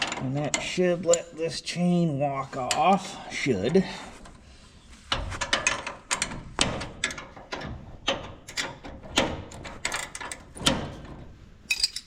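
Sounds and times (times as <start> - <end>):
metallic clicks and clanks: 0.0 - 1.3, 5.1 - 12.0.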